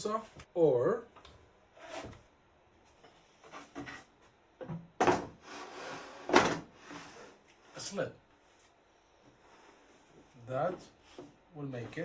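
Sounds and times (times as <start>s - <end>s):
wood scraping: 5.0s - 7.9s.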